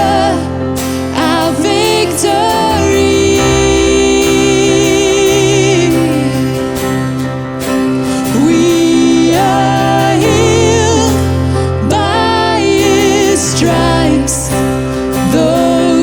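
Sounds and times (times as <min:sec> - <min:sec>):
instrumental backing with bass: 0:00.0 - 0:16.0
person singing with vibrato: 0:00.0 - 0:16.0.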